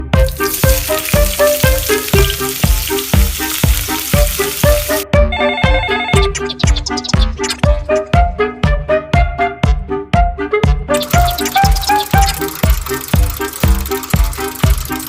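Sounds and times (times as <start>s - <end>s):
frying sizzle: 0.0s - 5.0s, 11.0s - 15.0s
upbeat music with steady beat: 0.0s - 15.0s.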